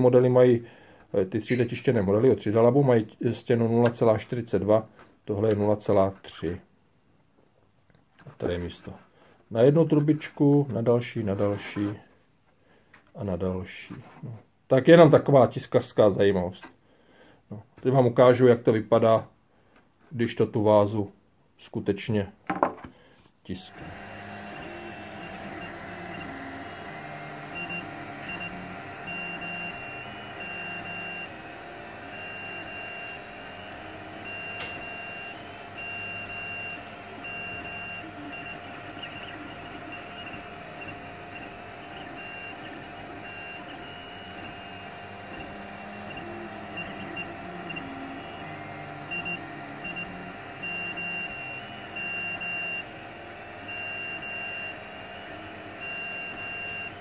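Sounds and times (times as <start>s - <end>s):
stepper motors whining: 23.5s - 57.0s.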